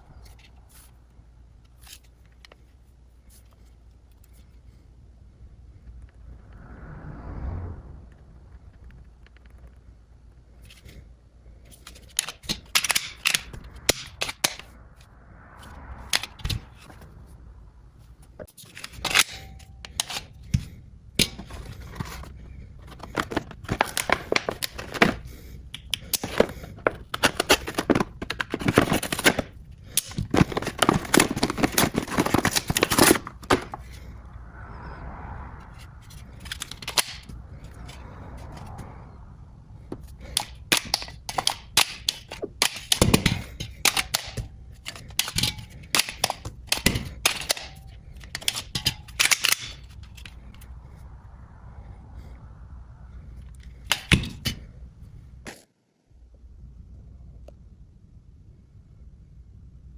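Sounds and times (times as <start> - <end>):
gun parts clicking and clacking: 11.7 - 14.7, 18.4 - 34.0, 36.4 - 38.5, 40.0 - 50.4, 53.6 - 54.6
packaging rustling: 22.9 - 34.0.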